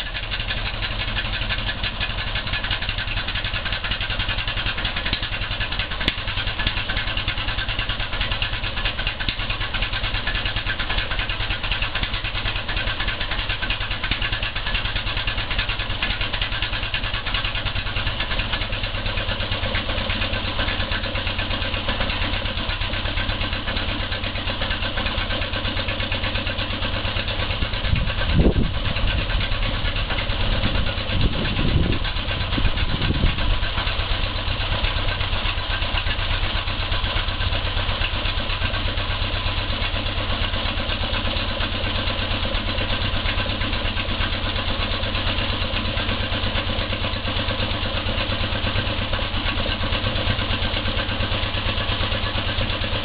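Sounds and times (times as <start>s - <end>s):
marine engine running steadily: 0.0s - 53.0s.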